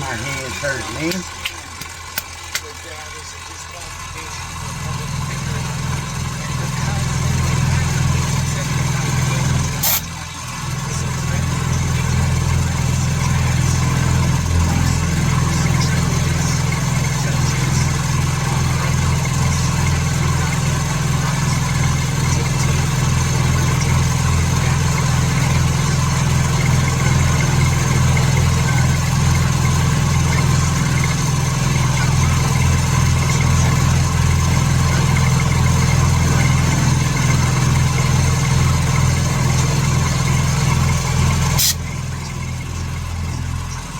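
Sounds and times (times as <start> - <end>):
sharp click: 9.8 - 10.1, 41.6 - 41.9.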